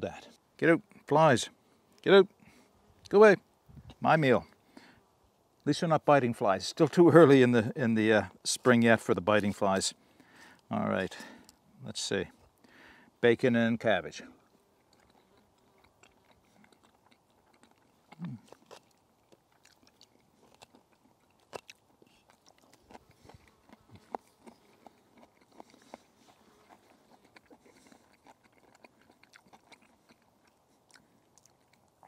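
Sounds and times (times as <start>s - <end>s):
person chewing crunchy food: 14.4s - 32.0s.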